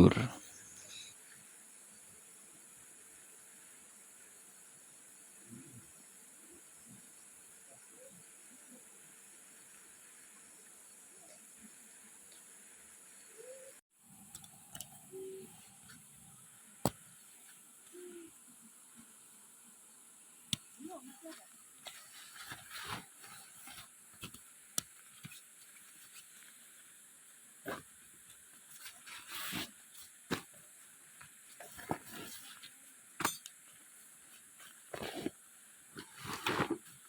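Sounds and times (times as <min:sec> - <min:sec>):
steady high hiss: 0:00.0 - 0:37.0.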